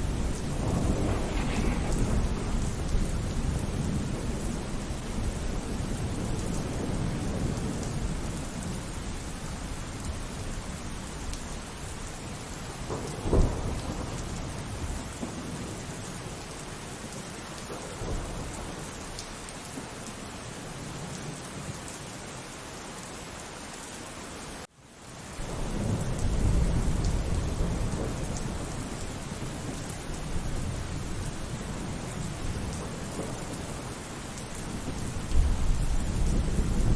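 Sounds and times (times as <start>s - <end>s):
sharp thunderclap: 0.0s - 7.6s, 12.8s - 15.6s
low rumble of thunder: 0.0s - 19.9s, 25.3s - 36.9s
steady rainfall: 0.0s - 36.9s.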